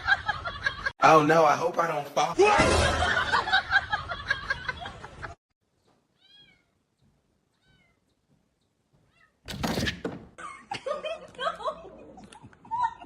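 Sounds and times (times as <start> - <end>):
cat meowing softly: 6.1 - 6.8, 7.5 - 8.1, 9.0 - 9.4.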